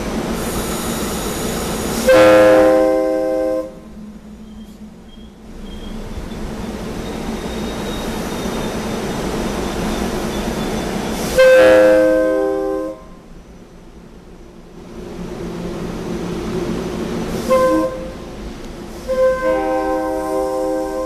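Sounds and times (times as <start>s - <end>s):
train rumbling past: 0.0s - 21.0s
train horn blast: 2.0s - 3.9s, 11.3s - 13.3s, 17.4s - 18.4s, 19.0s - 21.0s.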